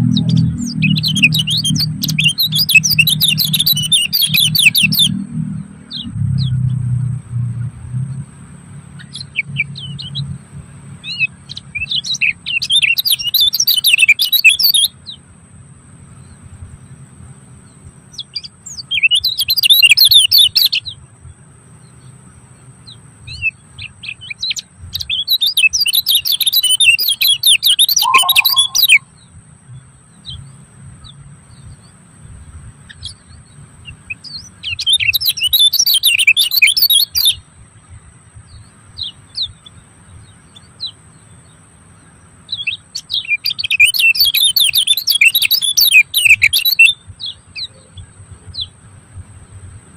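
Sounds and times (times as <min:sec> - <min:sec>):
songbird twittering: 0:00.0 - 0:06.7, 0:11.0 - 0:15.2, 0:22.9 - 0:29.2, 0:34.1 - 0:37.4, 0:38.5 - 0:48.8
thin high tone: 0:27.9 - 0:29.0.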